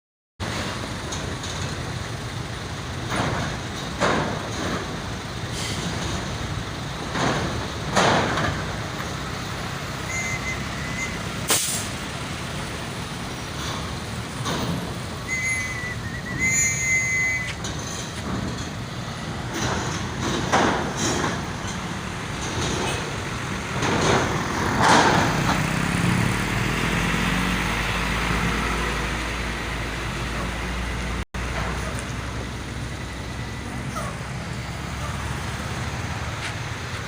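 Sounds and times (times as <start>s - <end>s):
heavy truck engines running: 0.4s - 37.0s
air brake hisses: 5.5s - 5.9s, 10.9s - 12.0s
high-pitched squeals: 10.0s - 11.4s, 15.1s - 18.2s.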